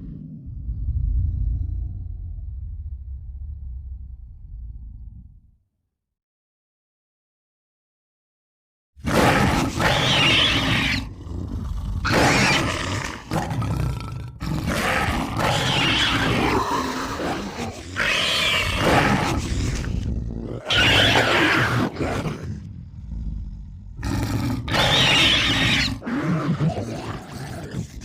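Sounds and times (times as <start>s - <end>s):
monster growling and roaring: 9.0s - 28.0s.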